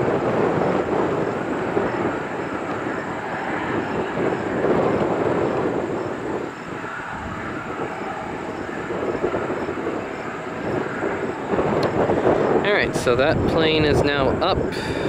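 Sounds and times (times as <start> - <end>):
turboprop engines at takeoff: 0.0 - 15.0.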